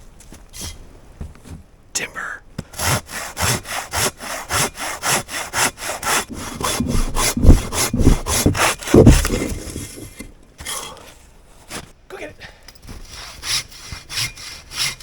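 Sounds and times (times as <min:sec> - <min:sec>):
saw cutting through wood: 0:02.8 - 0:10.3, 0:13.1 - 0:15.0
heavy low thuds: 0:06.3 - 0:10.3.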